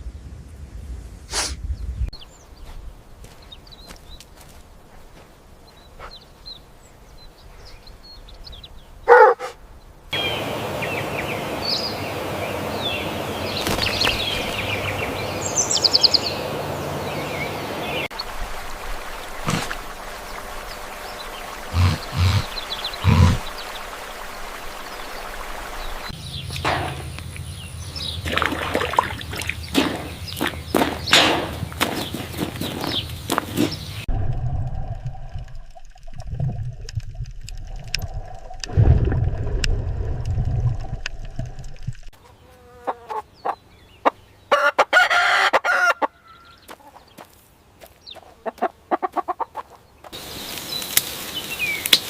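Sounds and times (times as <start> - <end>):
birds chirping: 1.7 - 34.1, 40.9 - 44.8, 45.6 - 52.0
low thumps: 34.1 - 42.1.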